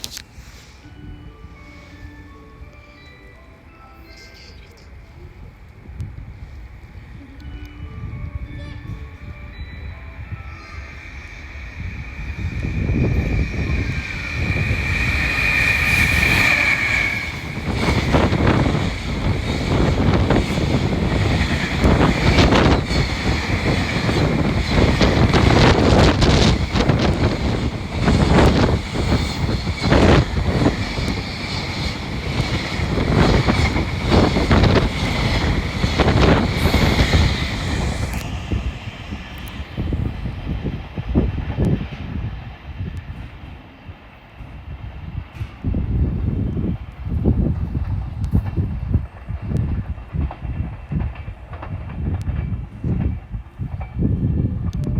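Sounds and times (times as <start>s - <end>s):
high steady train tone: 0.0s - 54.9s
rumble of train wagons: 0.0s - 54.9s.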